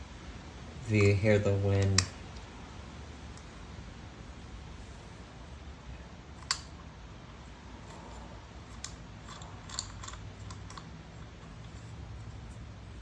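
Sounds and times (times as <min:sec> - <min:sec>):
small metal parts clicking: 0:08.7 - 0:12.0.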